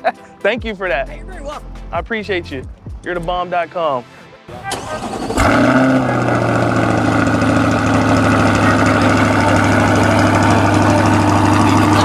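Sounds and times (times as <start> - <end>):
vehicle engine idling: 4.6 - 12.0.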